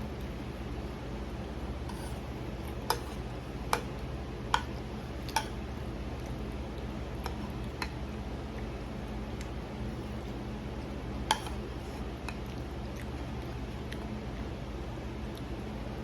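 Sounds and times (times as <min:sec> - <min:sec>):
steady low hum: 0:00.0 - 0:16.0
utensil clinking against a dish: 0:02.8 - 0:05.6, 0:11.3 - 0:11.6.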